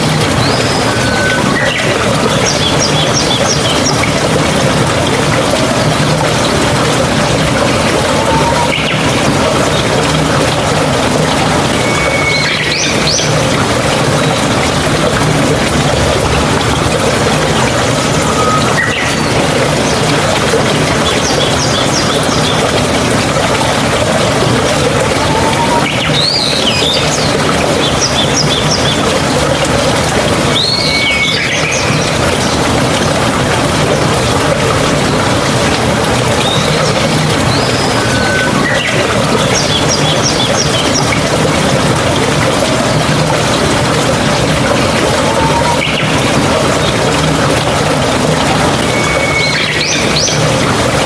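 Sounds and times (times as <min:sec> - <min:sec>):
birds chirping: 0:00.0 - 0:14.8, 0:16.9 - 0:29.3, 0:30.2 - 0:33.2, 0:44.5 - 0:50.8
running water: 0:00.0 - 0:51.0
bird whistling: 0:11.8 - 0:13.0, 0:48.9 - 0:50.0.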